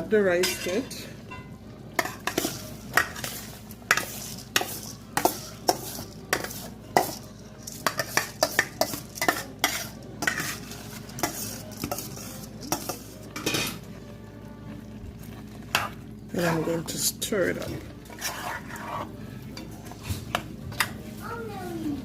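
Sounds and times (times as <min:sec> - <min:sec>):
spoon scraping a pot: 0:00.4 - 0:13.9, 0:15.2 - 0:20.9.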